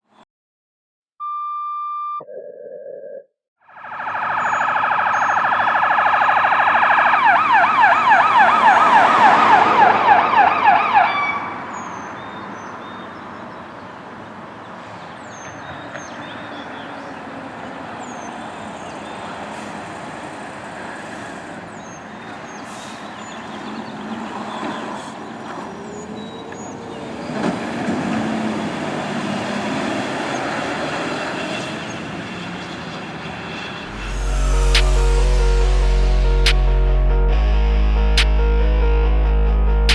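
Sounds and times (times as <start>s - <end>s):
electronic siren sweep: 3.7s - 11.7s, 33.5s - 39.9s
truck moving away: 7.6s - 10.9s, 16.5s - 39.9s
fire engine horn blast: 33.8s - 39.9s.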